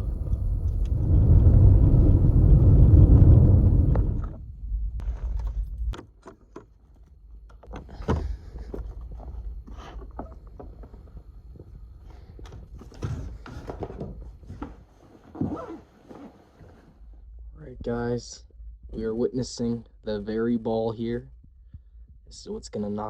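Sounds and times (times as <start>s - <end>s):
low rumble: 0.0s - 6.0s, 17.0s - 22.7s.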